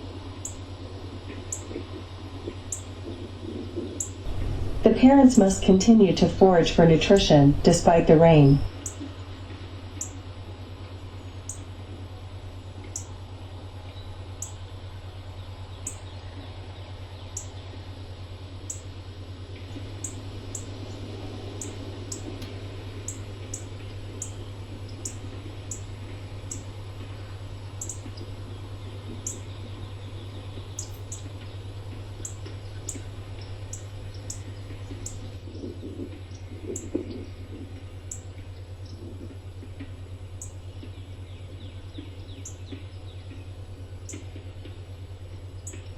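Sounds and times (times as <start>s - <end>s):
steady low hum: 0.0s - 45.9s
background hiss: 4.3s - 11.8s
small bird chirping: 27.8s - 35.4s.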